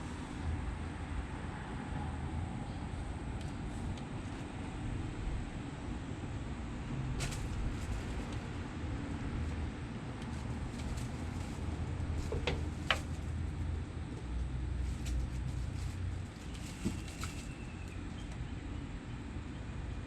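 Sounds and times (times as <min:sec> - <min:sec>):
kittens pattering: 0:07.2 - 0:08.6, 0:10.2 - 0:18.5.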